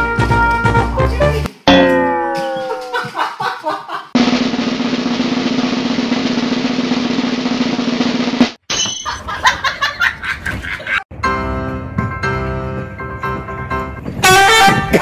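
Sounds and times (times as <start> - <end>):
snare drum roll: 4.2 - 8.6.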